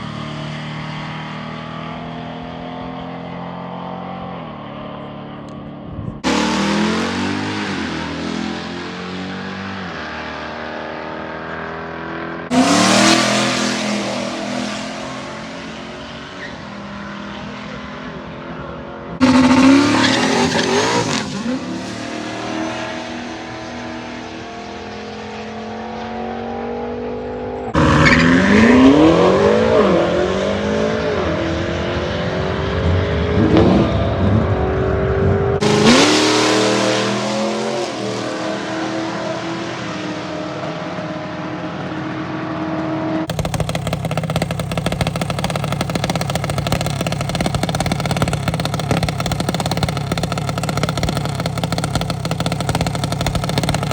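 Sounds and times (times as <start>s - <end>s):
racing car engines revving: 0.0s - 53.9s.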